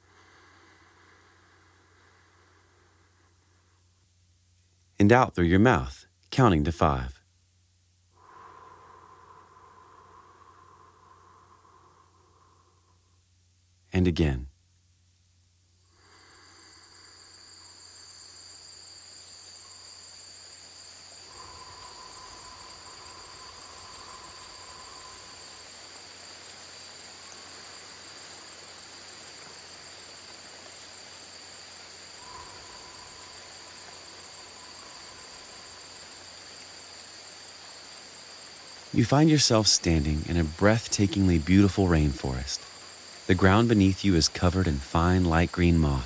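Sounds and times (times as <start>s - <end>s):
high insect drone: 0.0s - 3.9s, 8.2s - 13.3s, 15.8s - 46.0s
soft hiss: 0.0s - 46.0s
low steady animal call: 8.2s - 13.2s, 16.1s - 46.0s.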